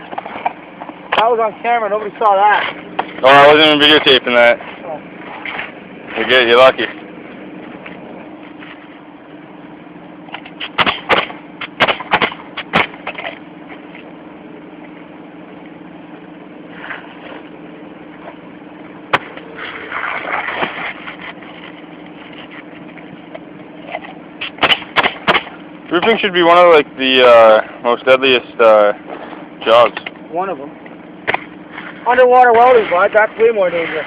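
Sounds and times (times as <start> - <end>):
engine-like hum: 0.0 - 34.0
sharp knocks: 10.4 - 13.3, 24.4 - 26.2
scraping: 19.2 - 25.6.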